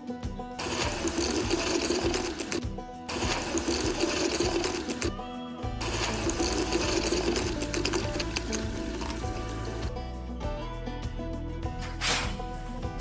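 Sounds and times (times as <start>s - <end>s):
background music: 0.0s - 13.0s
small electric motor whirring: 0.6s - 5.1s, 5.8s - 9.9s.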